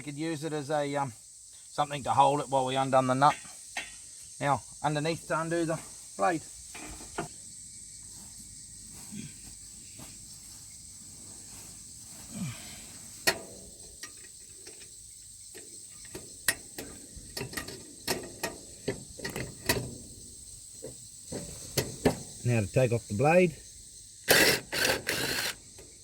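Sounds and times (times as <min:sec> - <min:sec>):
socket ratchet clicking: 0:24.3 - 0:25.7.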